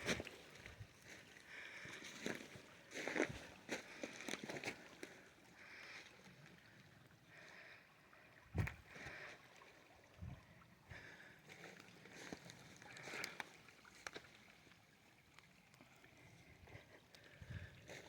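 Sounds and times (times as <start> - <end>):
water trickling and gurgling: 0.0 - 18.0.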